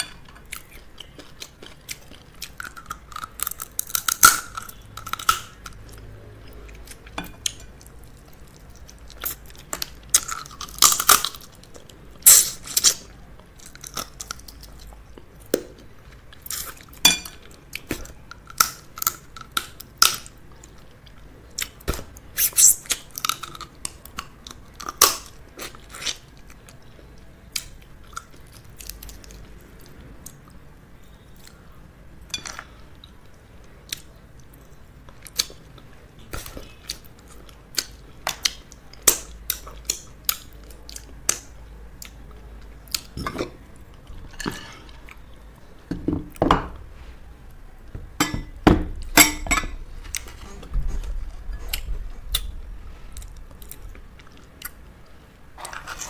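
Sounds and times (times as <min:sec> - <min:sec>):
chewing and cracking crab shell: 0:06.6 - 0:15.7.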